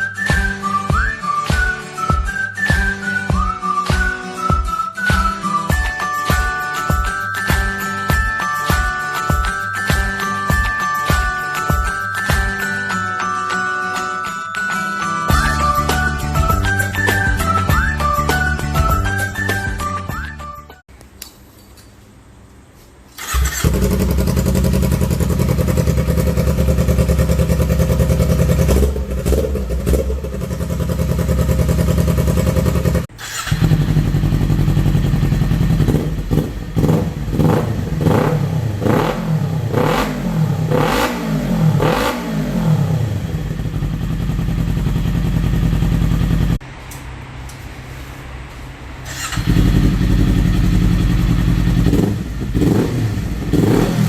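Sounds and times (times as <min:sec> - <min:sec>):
motorcycle engine revving: 0:23.2 - 0:46.6, 0:49.0 - 0:54.0
motorcycle engine idling: 0:23.3 - 0:38.8, 0:43.1 - 0:46.6, 0:49.2 - 0:53.7.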